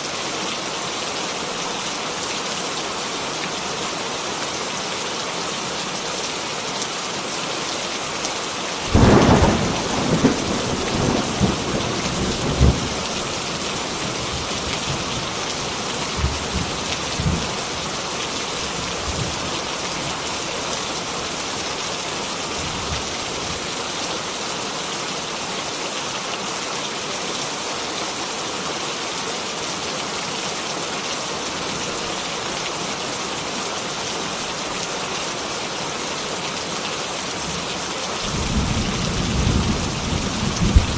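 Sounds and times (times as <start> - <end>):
heavy rain: 0.0 - 40.9
thunder rumbling: 8.9 - 17.5, 38.3 - 40.9.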